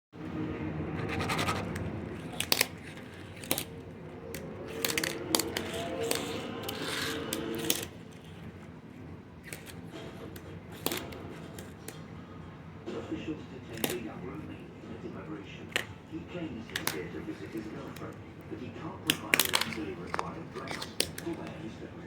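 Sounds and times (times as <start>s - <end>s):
small plastic and metal parts clicking: 1.3s - 3.7s, 19.1s - 21.4s.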